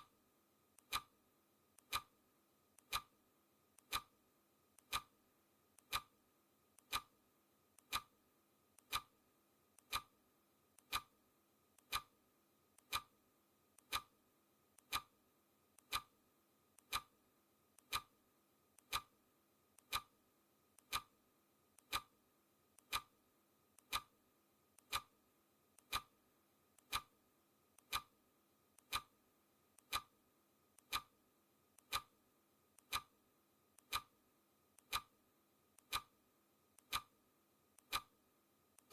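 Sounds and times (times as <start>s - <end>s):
clock ticking: 0.8s - 1.1s, 1.8s - 2.1s, 2.8s - 3.1s, 3.8s - 4.2s, 4.8s - 5.2s, 5.8s - 6.1s, 6.8s - 7.1s, 7.8s - 8.1s, 8.8s - 9.2s, 9.8s - 10.2s, 10.8s - 11.2s, 11.8s - 12.1s, 12.8s - 13.1s, 13.8s - 14.1s, 14.8s - 15.1s, 15.8s - 16.1s, 16.8s - 17.1s, 17.8s - 18.1s, 18.8s - 19.1s, 19.8s - 20.2s, 20.8s - 21.2s, 21.8s - 22.2s, 22.8s - 23.2s, 23.8s - 24.1s, 24.8s - 25.2s, 25.8s - 26.2s, 26.8s - 27.1s, 27.8s - 28.2s, 28.8s - 29.2s, 29.8s - 30.2s, 30.8s - 31.1s, 31.8s - 32.2s, 32.8s - 33.2s, 33.8s - 34.2s, 34.8s - 35.2s, 35.8s - 36.2s, 36.8s - 37.2s, 37.8s - 38.2s.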